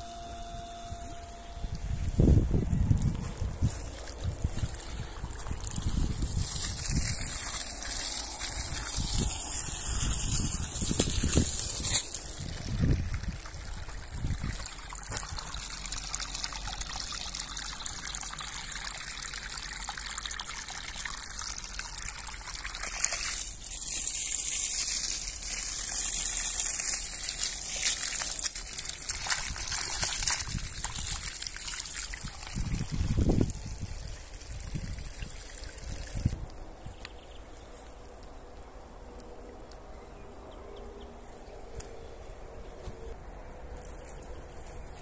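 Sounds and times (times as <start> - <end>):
water gushing from hose: 3.4 - 36.5
water splashing into puddle: 3.9 - 36.5.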